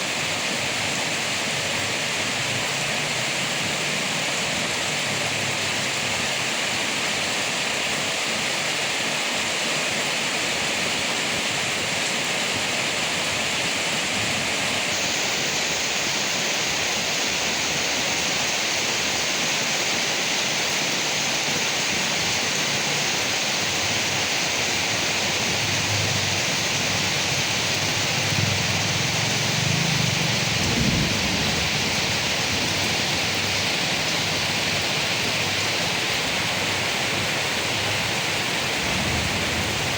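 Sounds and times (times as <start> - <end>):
heavy rain on leaves: 0.0 - 39.9
low rumble: 38.7 - 39.9.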